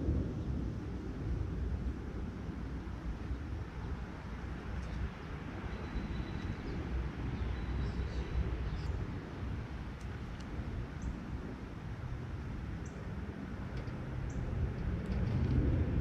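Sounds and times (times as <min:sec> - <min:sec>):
low outdoor rumble: 0:00.0 - 0:16.0
faint high chirps: 0:05.7 - 0:06.7.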